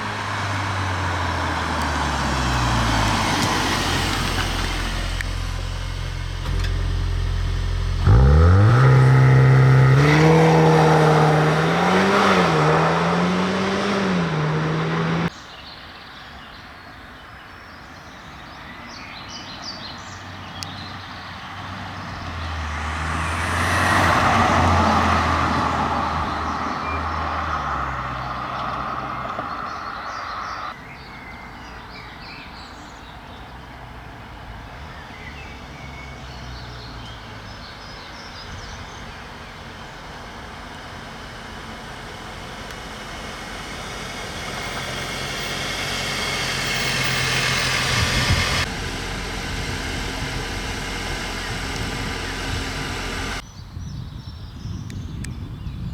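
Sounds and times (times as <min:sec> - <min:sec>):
car driving past: 0:00.0 - 0:15.3, 0:20.7 - 0:30.8, 0:34.7 - 0:53.4
car approaching: 0:00.0 - 0:15.8, 0:17.8 - 0:53.6.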